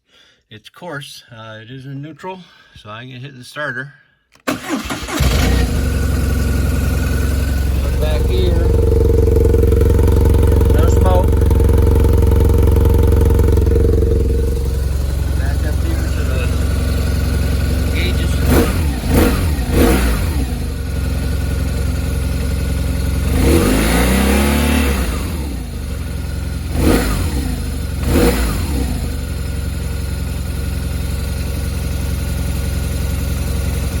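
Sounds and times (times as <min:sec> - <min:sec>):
motorcycle throttle blips: 0:04.6 - 0:30.7
motorcycle engine idling: 0:04.6 - 0:34.0.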